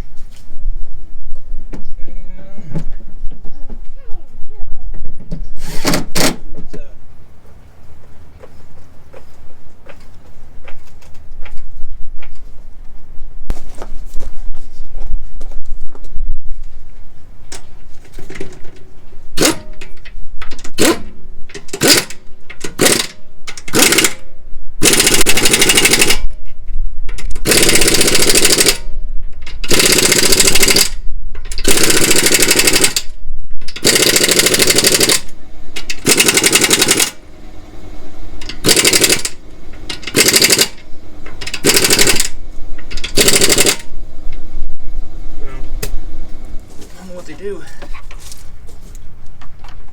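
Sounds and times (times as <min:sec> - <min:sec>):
impact wrench hammering: 0:20.6 - 0:24.2, 0:24.8 - 0:26.2, 0:27.3 - 0:28.8, 0:29.6 - 0:30.9, 0:31.5 - 0:33.0, 0:33.7 - 0:37.2, 0:38.4 - 0:44.0.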